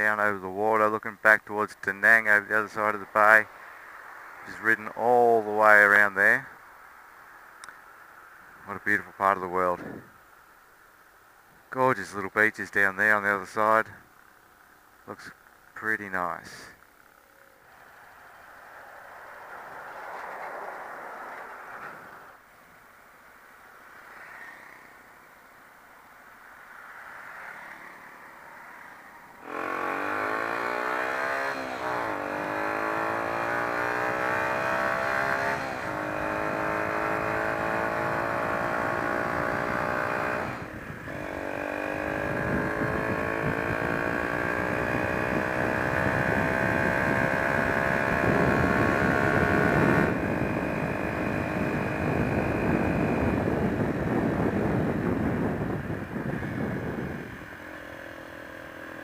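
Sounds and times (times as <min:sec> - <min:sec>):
wind and road rush: 0:00.0 - 0:59.0
motorcycle engine accelerating: 0:29.4 - 0:59.0.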